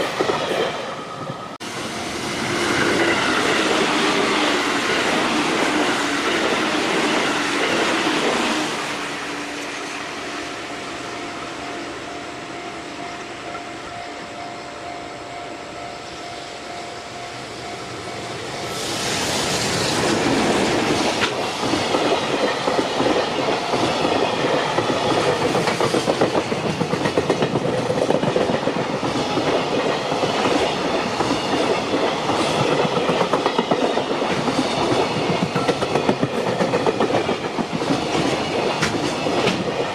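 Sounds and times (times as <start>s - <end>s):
electric train passing: 0.0s - 39.9s
freight locomotive passing: 0.0s - 39.9s
wheels clacking over rail joints: 19.9s - 39.9s.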